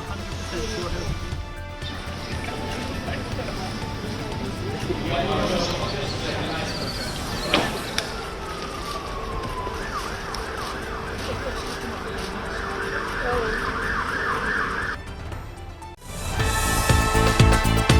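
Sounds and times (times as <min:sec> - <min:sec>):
emergency siren yelping: 0:03.5 - 0:15.0.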